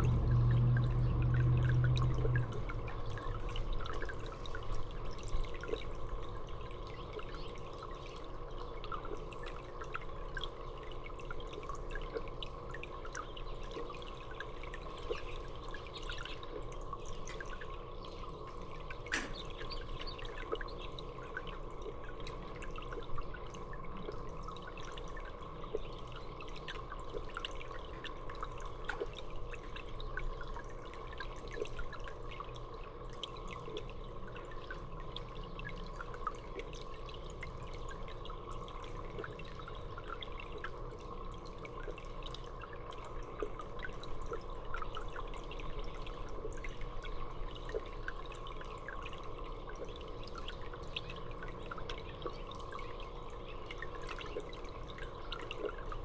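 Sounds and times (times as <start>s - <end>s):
water trickling and dripping: 0.0s - 56.0s.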